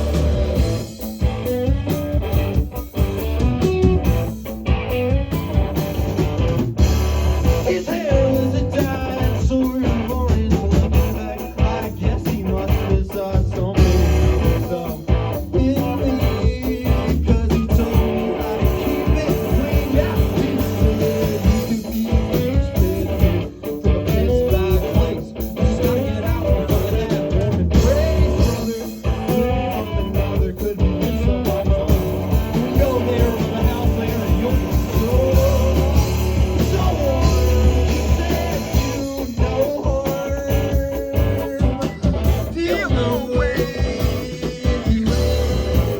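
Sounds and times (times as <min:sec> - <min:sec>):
bass guitar: 0:00.0 - 0:45.9
drums: 0:00.0 - 0:45.9
electric guitar: 0:00.0 - 0:45.9.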